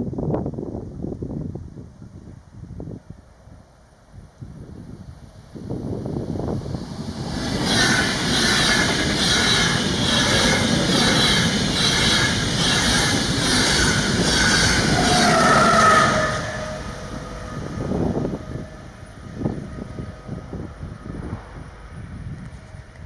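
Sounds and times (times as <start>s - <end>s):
train passing at speed: 3.5s - 23.0s
train wheels pulsing: 5.4s - 23.0s
tone gliding down: 6.7s - 22.5s.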